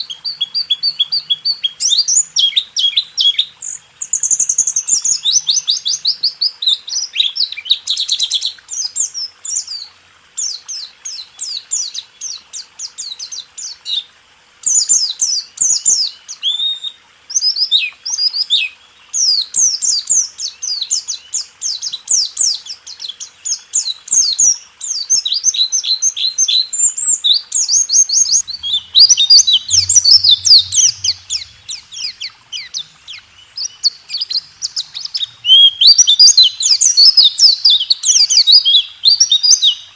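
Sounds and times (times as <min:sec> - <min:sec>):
bird singing rapid high chirps: 0:19.3 - 0:39.9.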